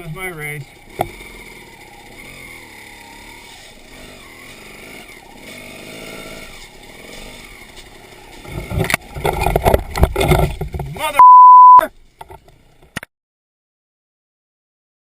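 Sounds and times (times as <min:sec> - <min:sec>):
distant motorcycle engines revving: 0:00.0 - 0:11.0.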